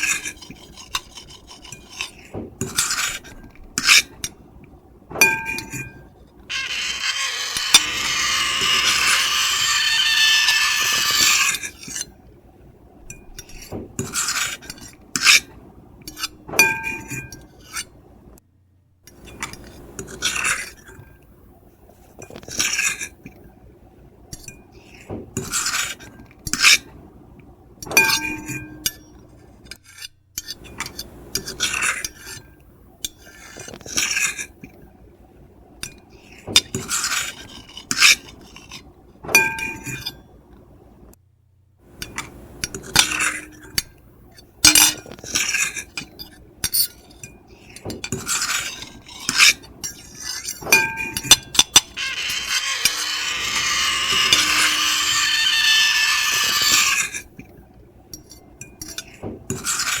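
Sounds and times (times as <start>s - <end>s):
fork and knife scraping on plate: 0.0s - 4.1s, 6.5s - 12.1s, 42.0s - 43.9s, 44.7s - 57.3s, 58.2s - 60.0s.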